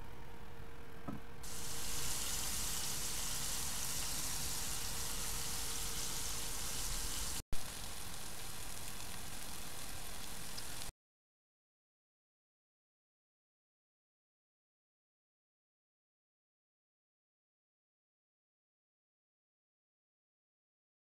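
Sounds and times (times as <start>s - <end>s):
chicken sizzling in a pan: 1.4s - 10.9s.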